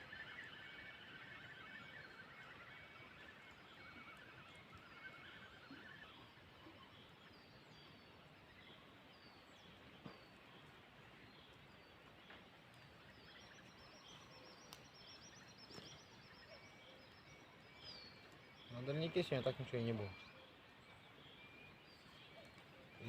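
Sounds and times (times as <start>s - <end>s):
faint clicks: 11.5s - 16.1s
small bird chirping and trilling: 12.7s - 23.0s.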